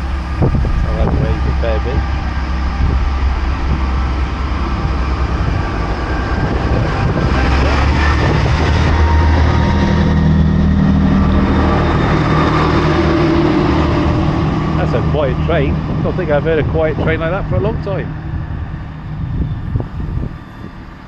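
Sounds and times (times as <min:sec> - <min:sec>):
train diesel engines rumbling: 0:00.0 - 0:21.0.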